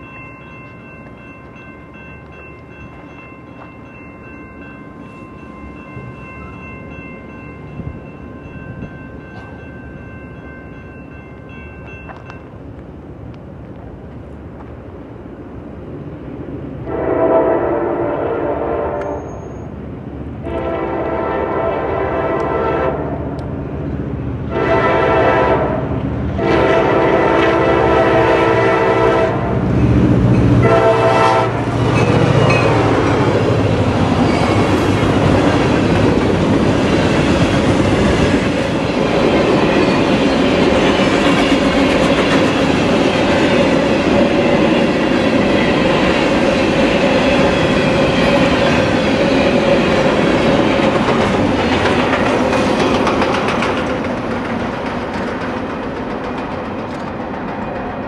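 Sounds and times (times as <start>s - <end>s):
locomotive air horn blasts: 16.8s - 19.3s, 20.4s - 23.2s, 24.5s - 29.6s, 30.6s - 31.8s
locomotive engine rumble: 23.1s - 58.0s
freight cars rolling: 26.1s - 58.0s.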